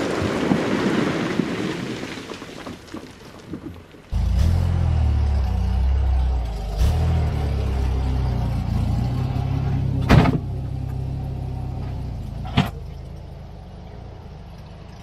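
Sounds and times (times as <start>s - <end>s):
tractor engine running: 4.1s - 15.0s.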